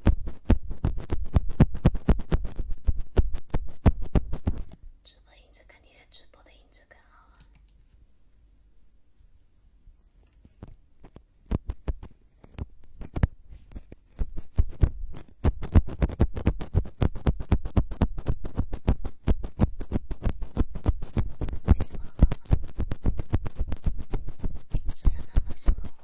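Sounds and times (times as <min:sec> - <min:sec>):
tapping and scratching on microphone: 0:00.0 - 0:04.9, 0:10.2 - 0:26.0.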